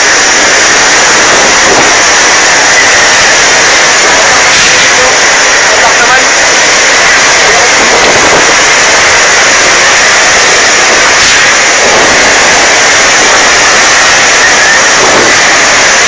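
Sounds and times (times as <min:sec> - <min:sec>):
strong wind roaring on microphone: 0:00.0 - 0:16.0.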